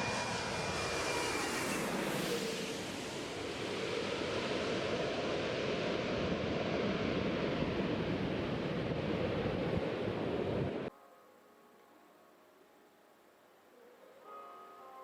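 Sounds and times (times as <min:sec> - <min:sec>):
jet engines roaring: 0:00.0 - 0:10.9.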